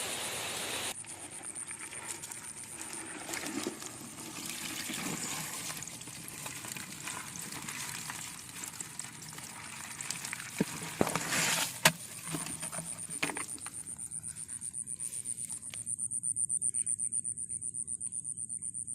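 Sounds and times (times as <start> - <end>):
pulsing insect call: 0.0 - 3.4, 12.2 - 18.9.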